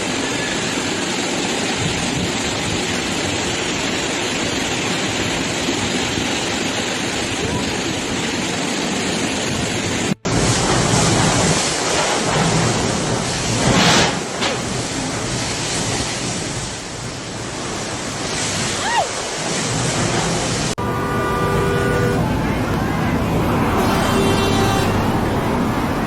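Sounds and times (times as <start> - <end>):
storm wind rushing: 0.0 - 20.8
rushing water: 0.0 - 26.0.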